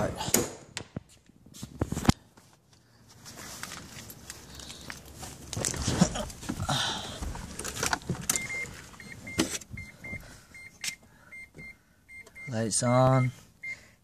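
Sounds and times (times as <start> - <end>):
dashboard warning chime beeping: 8.3 - 13.9.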